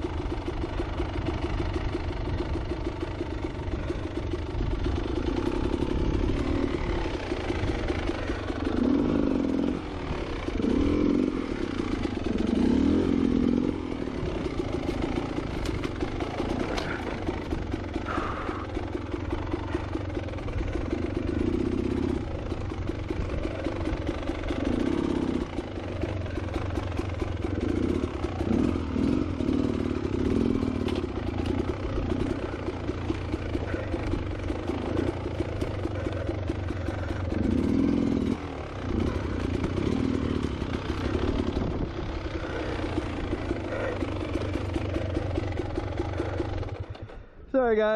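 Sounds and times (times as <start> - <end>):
dirt bike engine revving: 0.0 - 47.3.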